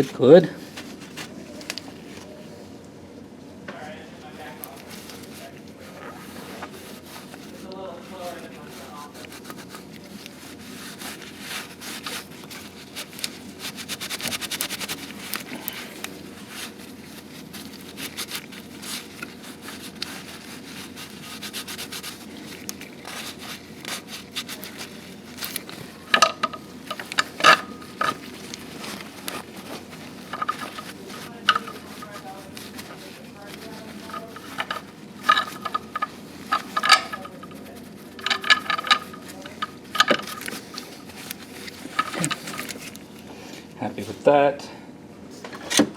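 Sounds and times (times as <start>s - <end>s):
hand tools scraping metal: 10.7s - 43.0s.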